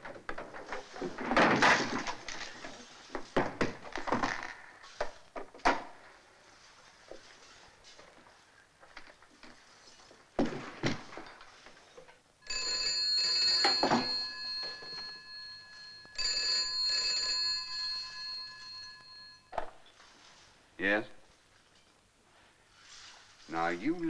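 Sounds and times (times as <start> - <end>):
telephone bell ringing: 12.4 - 19.7.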